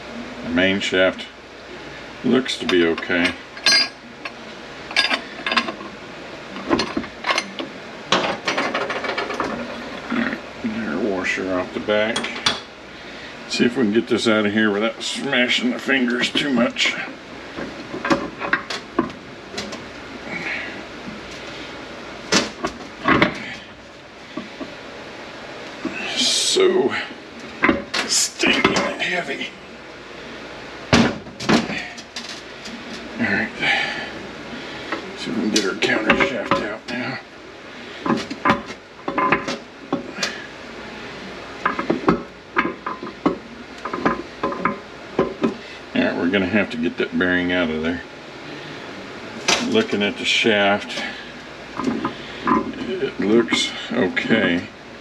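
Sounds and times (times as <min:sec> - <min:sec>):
metal parts clinking and knocking: 0:02.7 - 0:04.0, 0:06.6 - 0:09.6, 0:38.1 - 0:39.6
metal knocks clicks and scrapes: 0:06.6 - 0:10.2, 0:38.0 - 0:40.0, 0:41.6 - 0:45.6.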